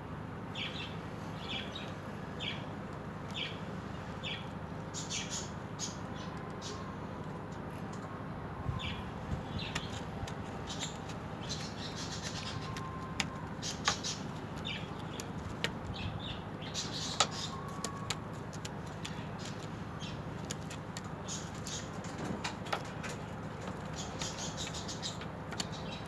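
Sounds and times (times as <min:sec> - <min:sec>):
steady low hum: 0:00.0 - 0:26.0
cage birds chirping: 0:00.4 - 0:26.0
sharp clicks: 0:17.0 - 0:19.7, 0:20.4 - 0:25.9.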